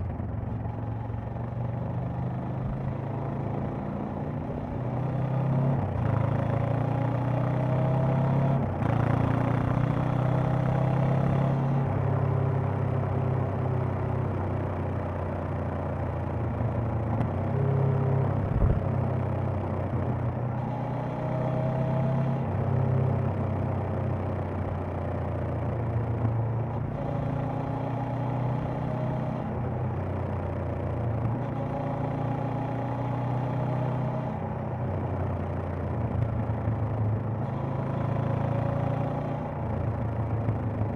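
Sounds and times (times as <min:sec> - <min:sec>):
motorcycle engine revving: 0:16.8 - 0:24.2, 0:26.0 - 0:35.7.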